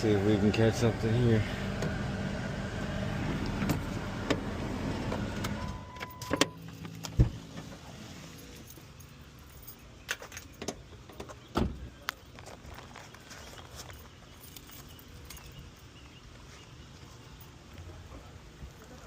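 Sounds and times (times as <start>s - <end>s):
car engine running: 0.0s - 5.8s.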